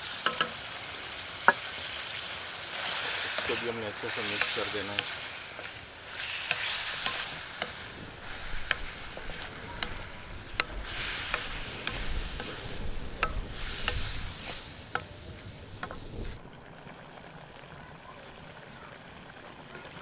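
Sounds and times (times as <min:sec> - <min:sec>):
frying hiss: 0:00.0 - 0:20.0
spatulas scraping and knocking pan: 0:02.8 - 0:16.4.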